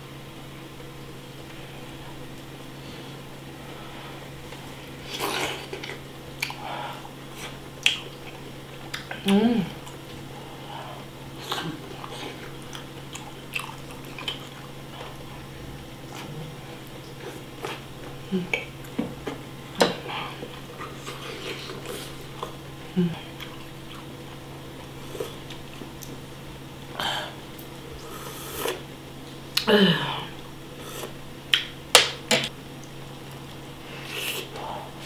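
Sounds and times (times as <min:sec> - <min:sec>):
chewing soft food: 0:04.4 - 0:19.4, 0:20.0 - 0:26.3.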